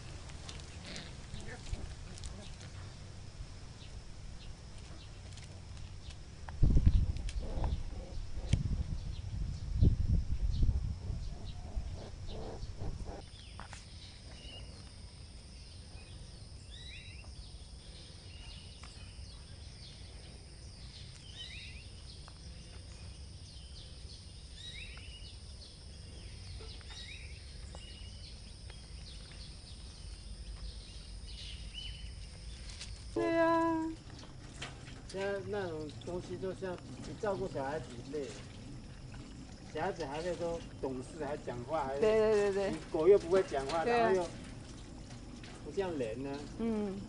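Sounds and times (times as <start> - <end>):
steady background hiss: 0.0 - 47.0
bird chirping: 6.9 - 34.3.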